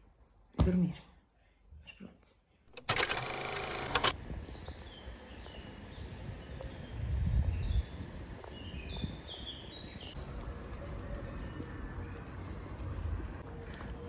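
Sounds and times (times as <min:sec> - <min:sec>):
small birds chirping: 0:04.4 - 0:14.0.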